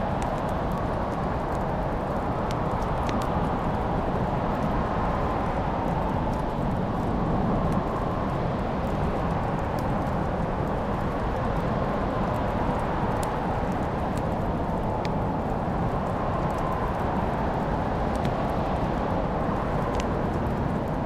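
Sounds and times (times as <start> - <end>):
wood fire burning: 0.0 - 21.0.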